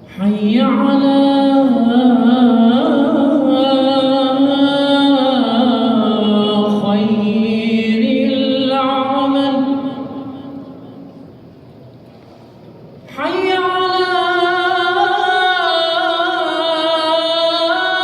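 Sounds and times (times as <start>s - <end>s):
man chanting call to prayer: 13.2s - 18.0s.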